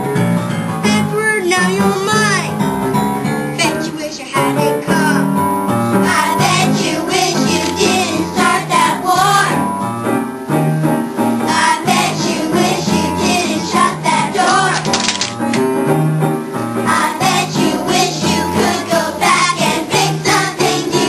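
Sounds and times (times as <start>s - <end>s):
instrumental accompaniment: 0.0s - 21.0s
child singing: 3.6s - 5.2s, 6.1s - 9.6s, 11.5s - 14.8s, 16.9s - 21.0s.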